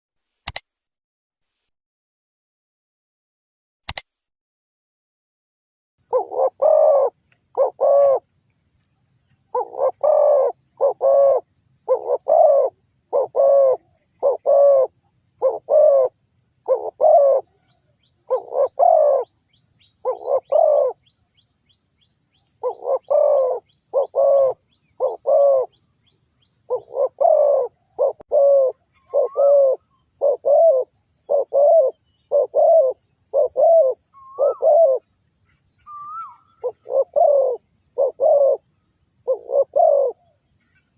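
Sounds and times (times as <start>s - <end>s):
dove cooing: 6.0s - 8.3s, 9.5s - 19.3s, 20.0s - 21.1s, 22.6s - 25.8s, 26.7s - 35.1s, 35.8s - 40.8s.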